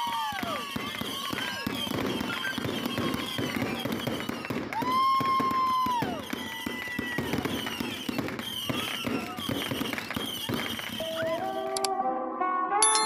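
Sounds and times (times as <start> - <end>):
falling firework whistles: 0.0 - 11.8
long steady whistle: 0.0 - 11.8
fireworks crackling and popping: 0.0 - 11.9.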